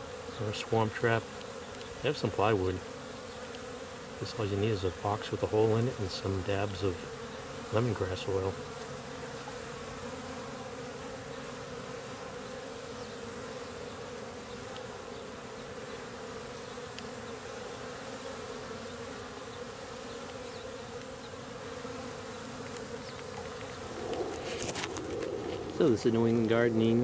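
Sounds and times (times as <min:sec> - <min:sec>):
honeybees buzzing: 0:00.0 - 0:27.0.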